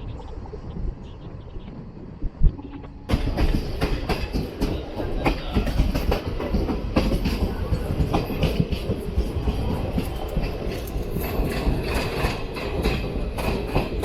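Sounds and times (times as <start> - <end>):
train wheels clattering over rail joints: 3.1 - 14.0.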